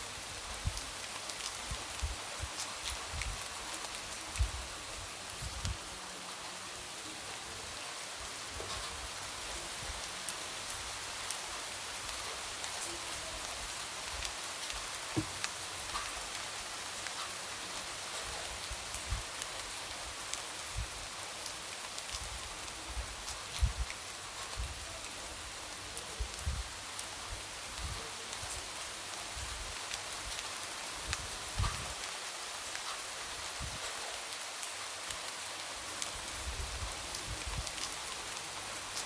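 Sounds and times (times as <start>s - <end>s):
light rain: 0.0s - 39.0s
raindrops tapping on window: 15.2s - 15.5s.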